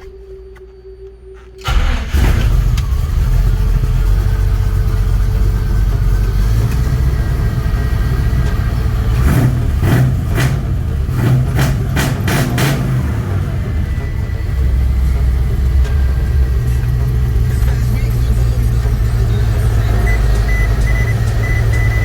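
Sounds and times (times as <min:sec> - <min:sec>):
engine revving blips: 0:01.6 - 0:22.0
engine starting and idling: 0:01.6 - 0:22.0.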